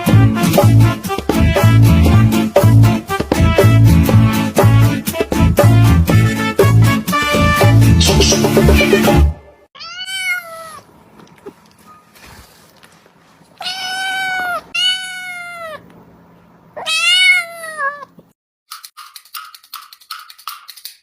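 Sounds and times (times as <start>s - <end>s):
cat meowing: 9.8s - 10.9s, 13.6s - 15.9s, 16.8s - 18.2s.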